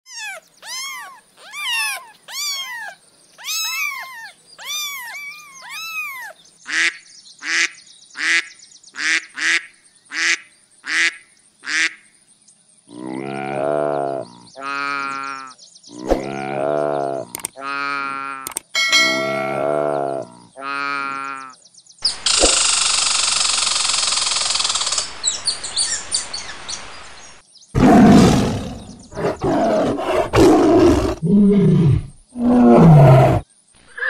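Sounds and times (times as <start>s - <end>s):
kitten mewing: 0.1s - 6.3s
deep animal calls: 19.2s - 21.4s, 27.8s - 34.0s.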